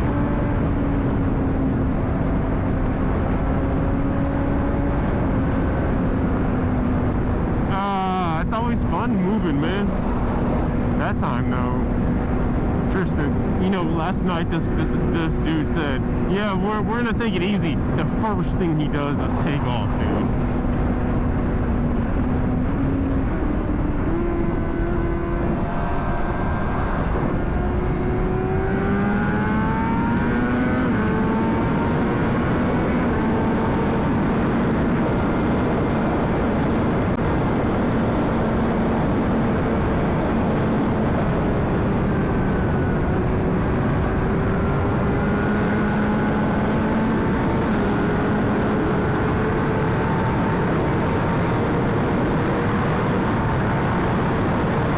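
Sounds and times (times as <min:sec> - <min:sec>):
wind rush: 0:00.0 - 0:54.9.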